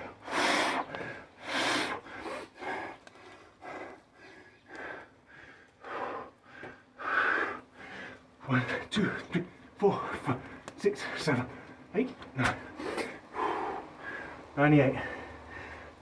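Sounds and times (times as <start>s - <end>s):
man breathing hard: 0.0s - 8.4s, 12.6s - 16.0s.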